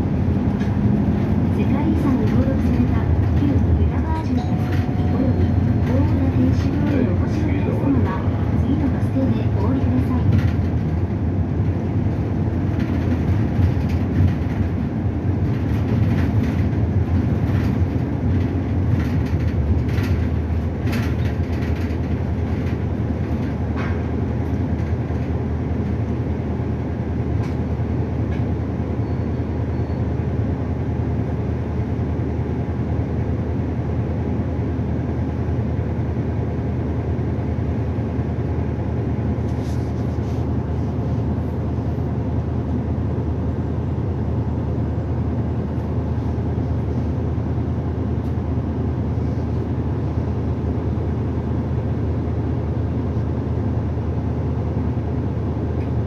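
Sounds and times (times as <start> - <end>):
road noise: 0.0 - 28.6
bus engine hum: 0.0 - 56.0.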